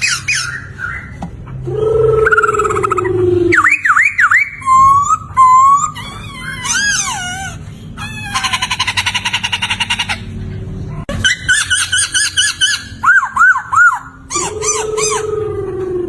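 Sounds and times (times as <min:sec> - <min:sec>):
bird whistling song: 0:00.0 - 0:01.3, 0:02.2 - 0:07.1, 0:11.2 - 0:15.3.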